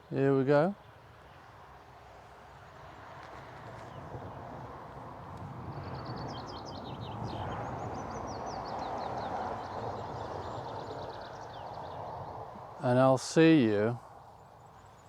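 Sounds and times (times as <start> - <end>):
small songbird singing: 5.8 - 12.4.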